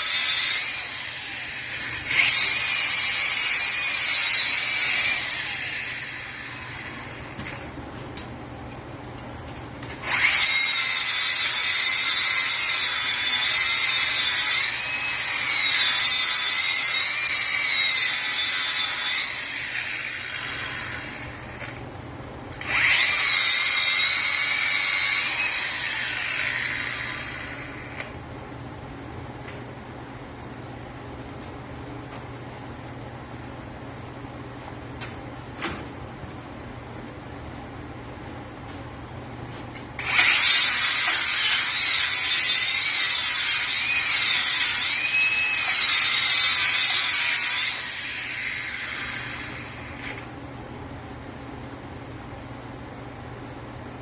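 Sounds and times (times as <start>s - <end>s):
power tool motor whine: 0.0s - 7.6s, 10.0s - 21.8s, 22.6s - 28.2s, 40.0s - 50.2s.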